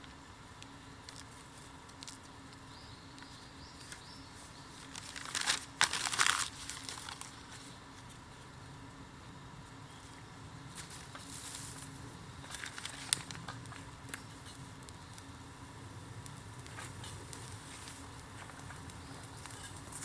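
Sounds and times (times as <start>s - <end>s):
dry bamboo crackling and snapping: 0.0s - 8.1s, 10.7s - 20.0s.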